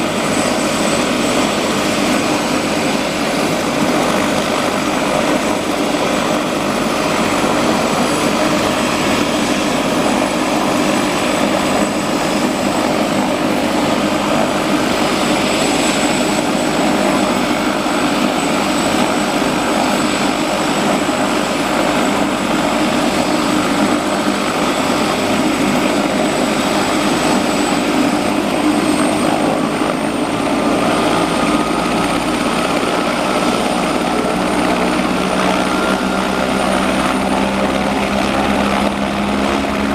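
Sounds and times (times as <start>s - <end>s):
helicopter engine and rotor: 0.0s - 39.9s
high-pitched turbine whine: 0.0s - 39.9s.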